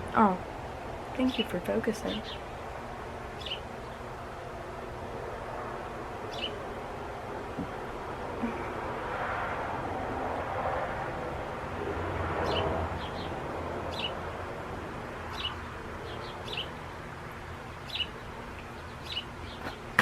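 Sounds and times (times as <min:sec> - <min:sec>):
small birds chirping: 0:01.2 - 0:02.6, 0:03.3 - 0:04.1, 0:06.3 - 0:06.6, 0:12.4 - 0:14.2, 0:15.2 - 0:16.9, 0:17.5 - 0:20.0.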